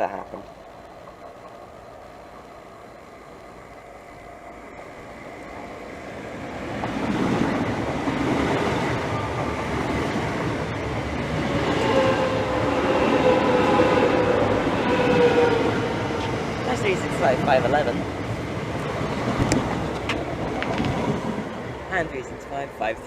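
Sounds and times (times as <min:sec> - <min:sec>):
train rumble: 0:00.0 - 0:23.0
train whine falling in pitch: 0:11.5 - 0:16.7.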